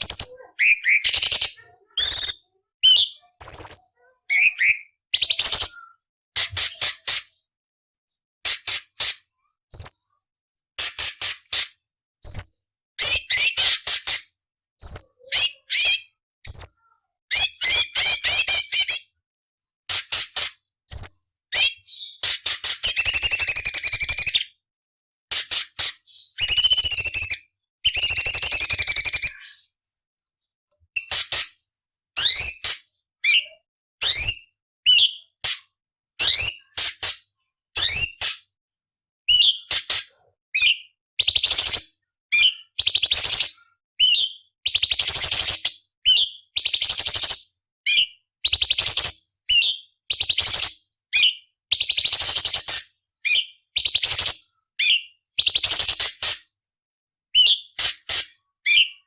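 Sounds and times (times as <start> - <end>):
bird singing chatters and whistles: 0.0 - 7.4, 14.8 - 19.1, 20.9 - 24.6, 25.6 - 29.8, 32.2 - 35.4, 36.2 - 36.9, 39.3 - 39.8, 40.6 - 56.4, 57.3 - 59.0.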